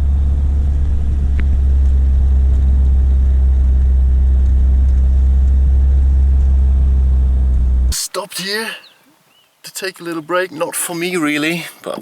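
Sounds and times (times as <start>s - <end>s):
car engine and road drone: 0.0s - 8.0s.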